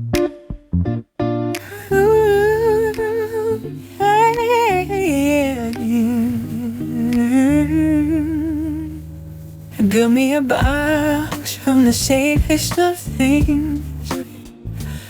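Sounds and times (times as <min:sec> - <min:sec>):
sustained low bass notes: 0:10.6 - 0:11.3, 0:12.0 - 0:15.0.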